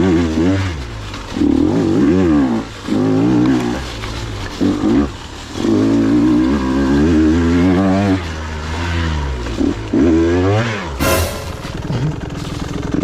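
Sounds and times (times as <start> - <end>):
dirt bike engine revving: 4.8 - 13.0.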